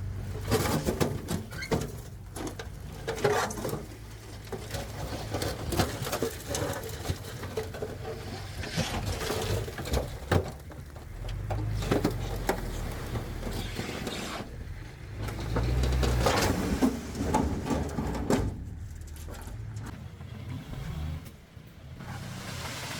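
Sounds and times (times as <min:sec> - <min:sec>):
clanks and knocks: 0:00.0 - 0:20.3
heavy machinery diesel engine: 0:00.0 - 0:22.9.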